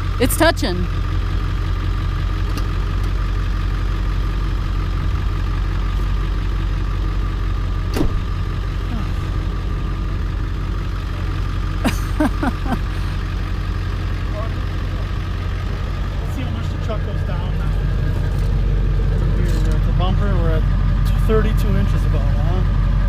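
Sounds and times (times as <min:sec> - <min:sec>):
truck engine idling: 0:00.0 - 0:23.0.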